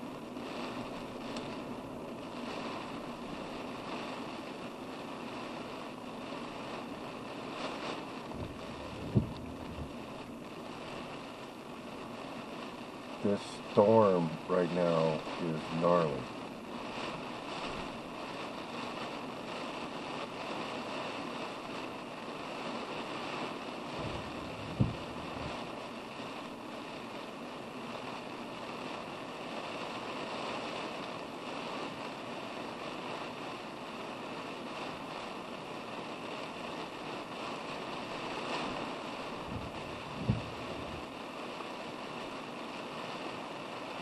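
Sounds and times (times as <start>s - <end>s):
heavy rain heard inside a car: 0.0s - 44.0s
short sharp thump: 24.0s - 25.5s.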